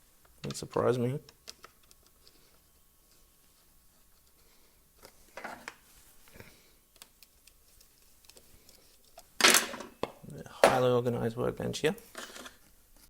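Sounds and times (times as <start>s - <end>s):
small parts clicking and tapping: 1.2s - 3.2s, 6.9s - 9.8s
tools clattering: 9.4s - 10.8s.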